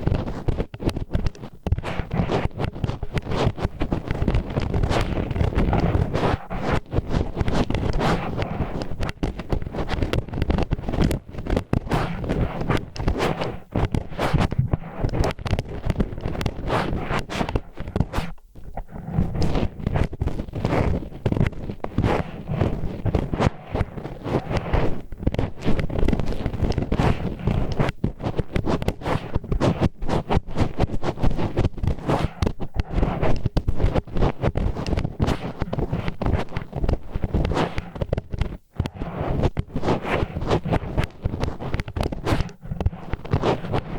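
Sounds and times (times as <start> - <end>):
chopsticks scraping in ear: 11.8 - 21.3, 31.3 - 43.9.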